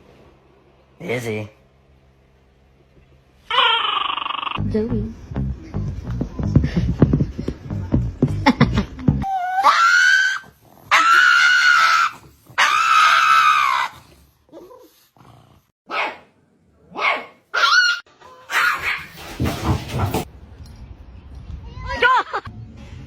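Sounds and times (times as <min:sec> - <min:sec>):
dog howling and yelping: 0:09.2 - 0:14.0, 0:17.6 - 0:19.0.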